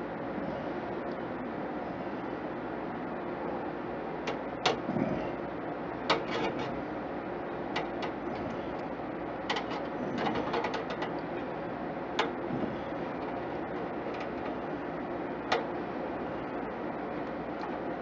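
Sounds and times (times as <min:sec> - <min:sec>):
small clicks inside computer case: 0:09.5 - 0:11.2.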